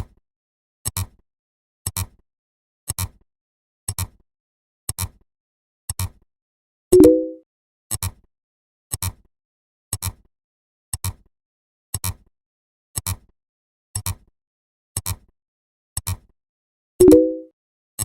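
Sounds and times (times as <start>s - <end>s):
brief low beep: 7.0s - 7.4s, 17.0s - 17.5s.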